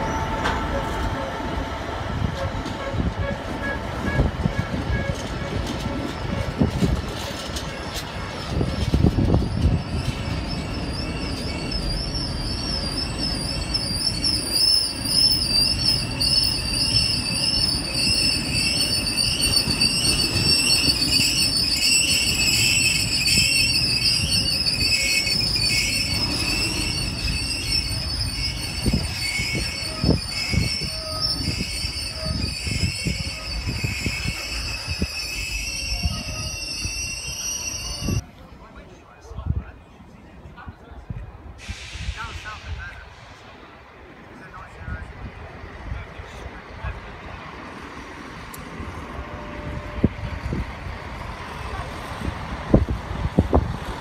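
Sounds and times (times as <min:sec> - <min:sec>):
train wheels squealing: 0:00.0 - 0:00.8, 0:02.4 - 0:38.2, 0:48.9 - 0:52.9
train rumbling: 0:00.0 - 0:54.0.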